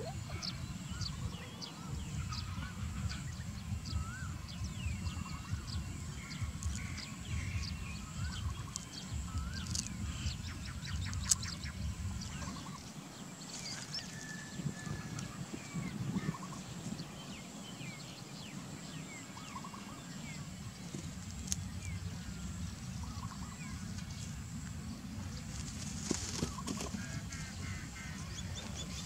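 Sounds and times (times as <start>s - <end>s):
low rumble: 0.0s - 13.0s, 20.2s - 29.0s
faint high-pitched hum: 0.0s - 29.0s
small birds chirping: 0.0s - 29.0s.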